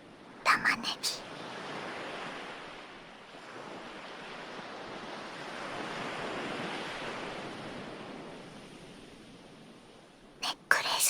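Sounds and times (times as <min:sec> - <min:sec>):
ocean waves washing onto shore: 0:01.3 - 0:09.8.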